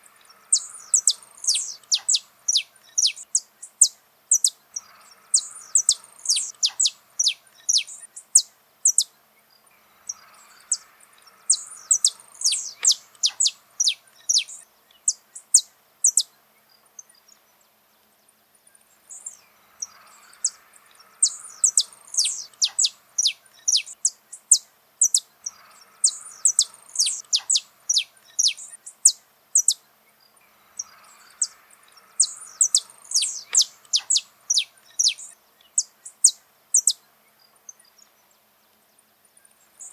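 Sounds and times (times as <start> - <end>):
faint steady background noise: 0.0 - 39.9
finch singing high notes: 30.8 - 35.9.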